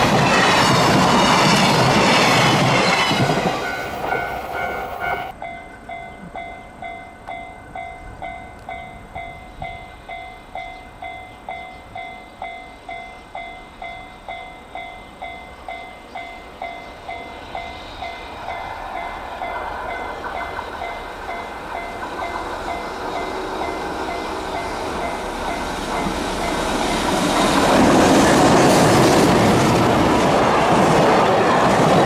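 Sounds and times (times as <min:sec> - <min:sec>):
train rumble and wheel clatter: 0:00.0 - 0:32.0
level-crossing bell ringing: 0:02.8 - 0:19.1.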